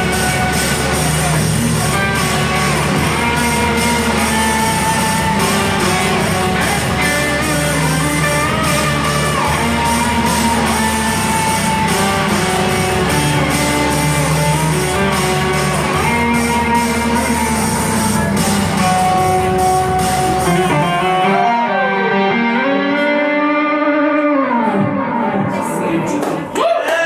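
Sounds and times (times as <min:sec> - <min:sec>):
live band with electric guitar: 0:00.0 - 0:26.6.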